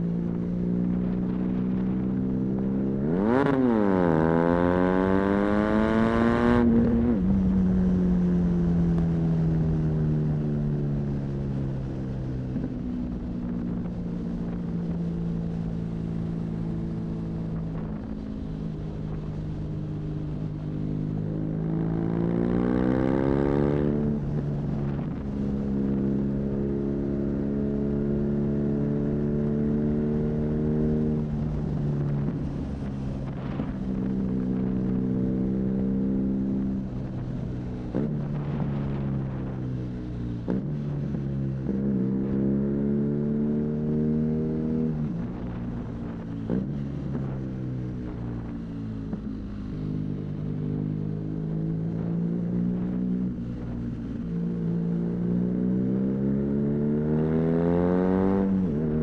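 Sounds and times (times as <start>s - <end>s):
motorcycle engine revving: 0.7s - 8.9s, 21.5s - 37.0s, 48.1s - 59.0s.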